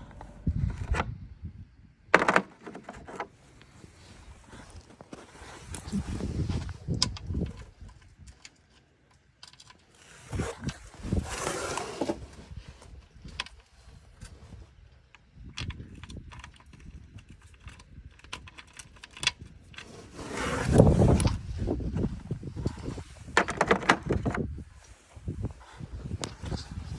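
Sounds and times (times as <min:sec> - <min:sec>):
hard objects clicking and rattling: 0:02.1 - 0:03.3, 0:15.5 - 0:19.9
rustling and scraping: 0:02.2 - 0:15.1, 0:15.7 - 0:26.9.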